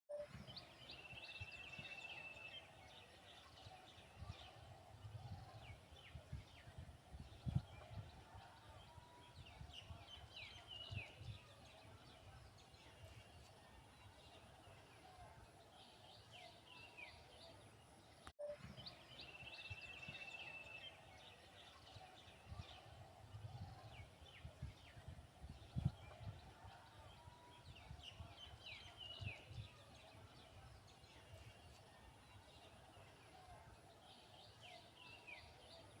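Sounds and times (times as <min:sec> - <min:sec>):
wind rumble on microphone: 0:04.0 - 0:14.0, 0:21.8 - 0:32.0.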